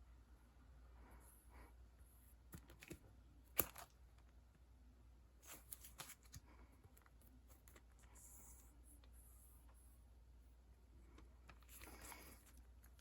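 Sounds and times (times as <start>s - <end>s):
paper and packaging handled: 5.4s - 8.1s.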